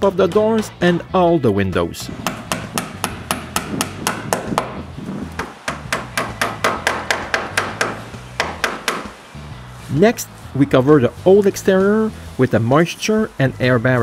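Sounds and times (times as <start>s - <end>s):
hammer driving nails: 2.2s - 4.8s, 5.4s - 9.2s.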